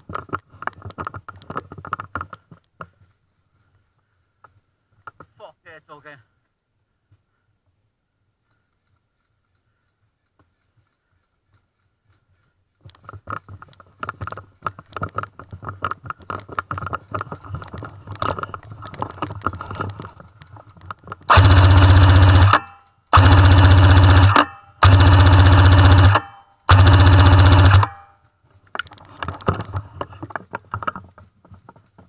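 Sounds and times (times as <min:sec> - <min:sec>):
knocks and rattles: 0:12.8 - 0:28.1
airsoft machine gun bursts: 0:21.3 - 0:28.1.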